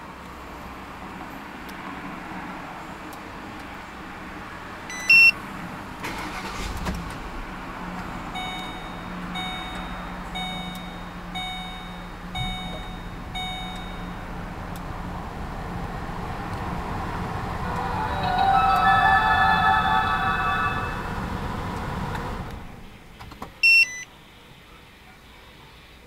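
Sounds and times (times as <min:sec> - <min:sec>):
car engine cranking and idling: 0:00.0 - 0:19.4, 0:20.6 - 0:24.0
short loud beep: 0:04.9 - 0:05.4, 0:08.4 - 0:14.2, 0:17.6 - 0:21.7
chime ringing: 0:17.2 - 0:22.4.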